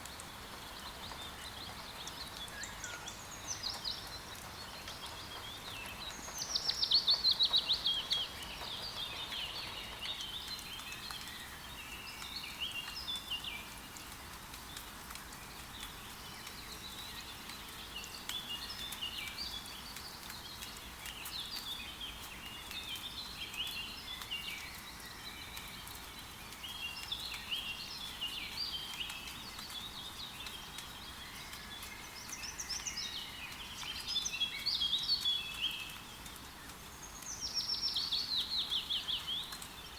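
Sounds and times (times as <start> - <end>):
light rain hiss: 0.0 - 39.9
birds chirping and singing: 0.9 - 11.4.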